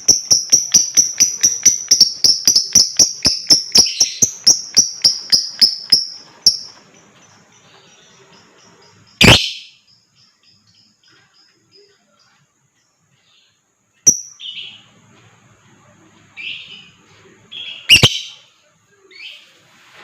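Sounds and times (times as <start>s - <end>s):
lovebird chattering: 0.0s - 6.8s, 8.4s - 9.8s, 14.1s - 14.7s, 17.6s - 18.5s.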